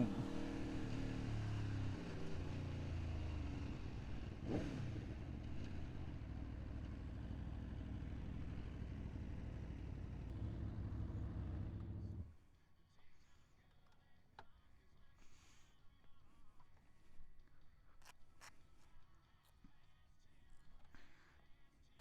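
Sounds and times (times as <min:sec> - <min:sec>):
motorcycle engine running: 0:00.0 - 0:12.3.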